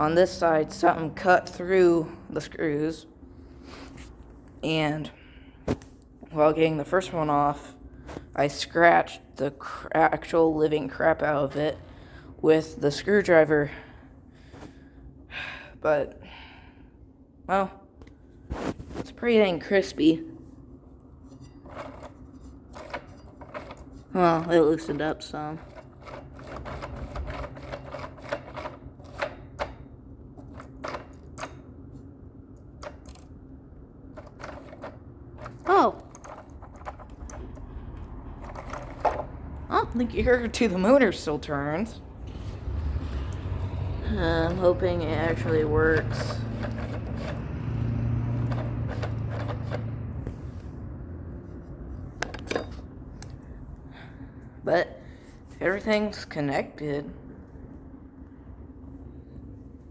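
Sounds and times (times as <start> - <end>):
screwdriver clicking and scraping: 21.2 - 31.7, 44.6 - 50.4.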